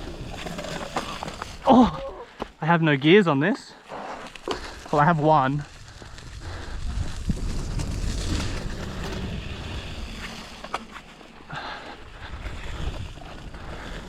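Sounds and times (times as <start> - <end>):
bicycle tyre rumble: 0.0 - 2.4, 3.9 - 14.0
wind rushing over microphone: 5.5 - 10.6, 12.0 - 14.0.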